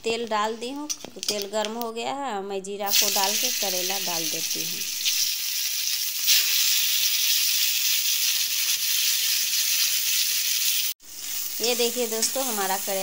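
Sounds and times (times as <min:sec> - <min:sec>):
food sizzling in hot oil: 0:02.9 - 0:13.0.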